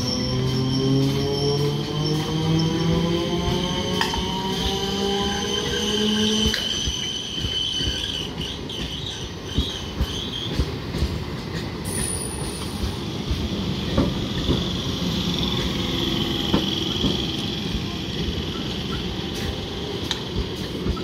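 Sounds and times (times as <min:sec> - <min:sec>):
high wheel squeal: 0:00.0 - 0:10.6
train wheels rumbling on rail: 0:00.0 - 0:21.0
wheels knocking on rail joints: 0:12.8 - 0:21.0.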